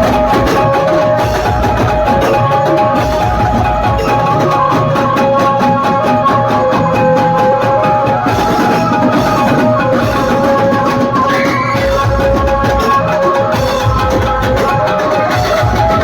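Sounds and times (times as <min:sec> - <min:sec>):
loud electronic dance music: 0:08.4 - 0:16.0.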